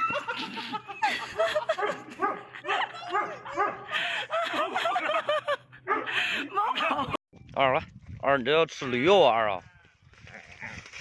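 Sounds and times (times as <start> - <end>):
dog barking and yelping: 1.7 - 3.9, 5.8 - 6.2.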